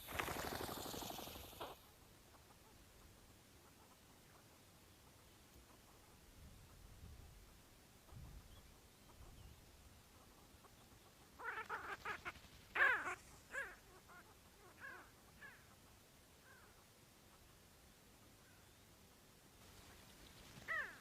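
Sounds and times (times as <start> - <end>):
bird calling: 0.0 - 2.8, 10.6 - 15.8, 20.6 - 21.0.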